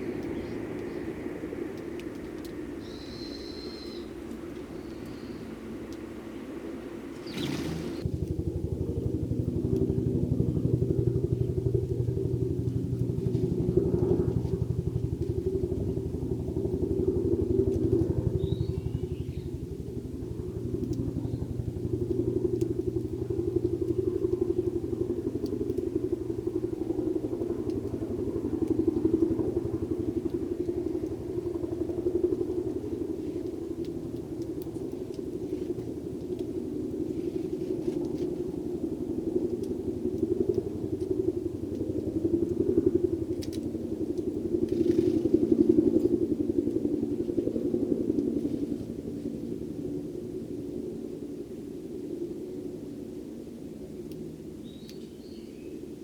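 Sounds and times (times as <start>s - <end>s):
faint bird chirp: 2.8s - 6.5s, 7.1s - 8.0s, 18.3s - 19.6s, 54.6s - 55.8s.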